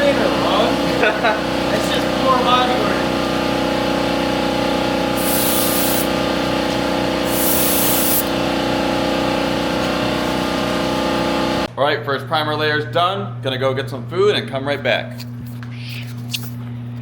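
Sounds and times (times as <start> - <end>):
steady mechanical hum: 0.0 - 17.0
spray can hissing: 5.2 - 6.1, 7.2 - 8.3.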